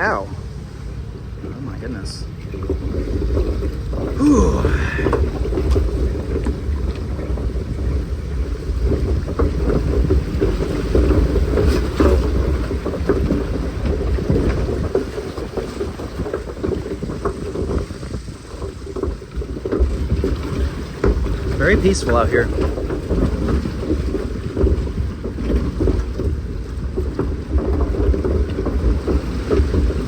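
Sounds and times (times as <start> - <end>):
low rumble: 0.0 - 10.0
water sloshing: 0.0 - 30.0.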